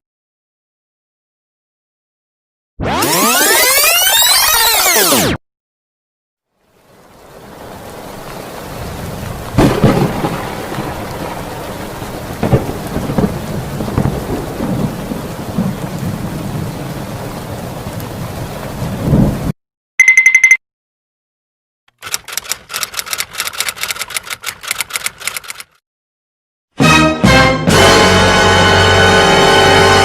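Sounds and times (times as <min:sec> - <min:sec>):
steady rain: 0:06.5 - 0:19.6
thunderclaps: 0:07.4 - 0:19.5.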